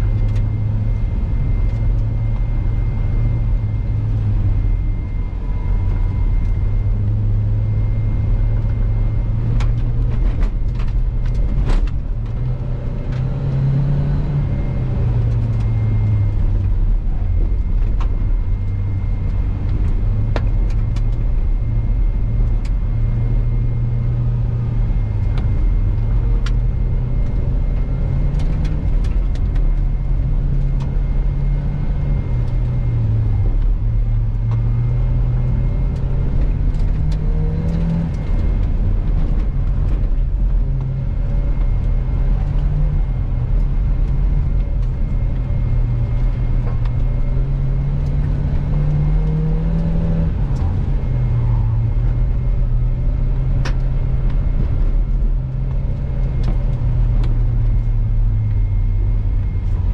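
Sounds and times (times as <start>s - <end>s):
car engine revving: 0.0s - 59.9s
tyre and road rumble: 0.0s - 59.9s.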